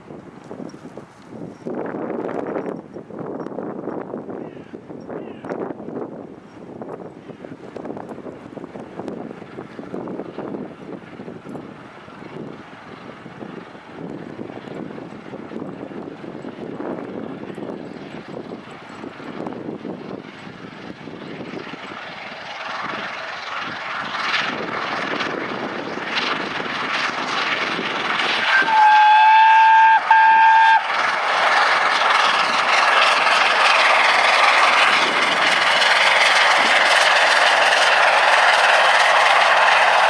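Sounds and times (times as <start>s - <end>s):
steam locomotive passing: 0.0s - 40.0s
steam locomotive whistle: 28.1s - 32.0s.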